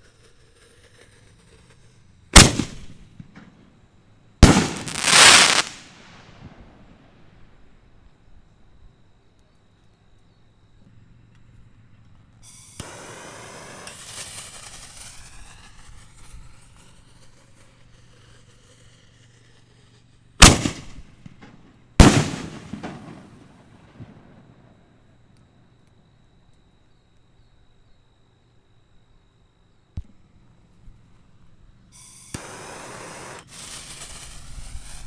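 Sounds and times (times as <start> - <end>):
firework fuse hissing: 0.0 - 3.1, 4.4 - 6.7, 12.5 - 21.3, 22.0 - 23.6, 32.0 - 35.0
loud firework bangs with echo: 2.4 - 3.0, 4.4 - 6.6, 20.4 - 21.0, 22.0 - 24.2.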